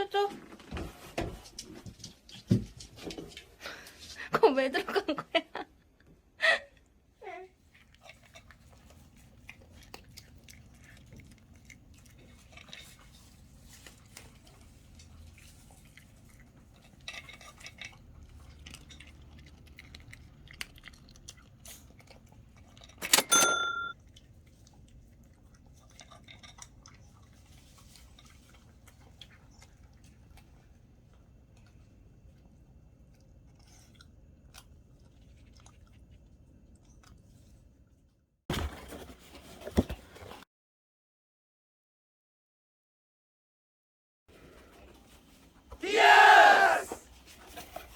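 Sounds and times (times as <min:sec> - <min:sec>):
dog crunching food: 0:07.7 - 0:23.0.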